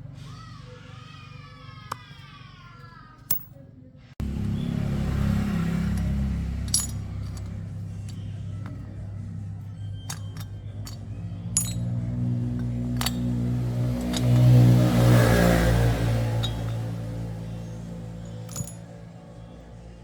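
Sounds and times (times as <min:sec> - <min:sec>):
motorcycle engine humming: 0:04.2 - 0:20.0
sharp metallic clinks: 0:05.4 - 0:19.6.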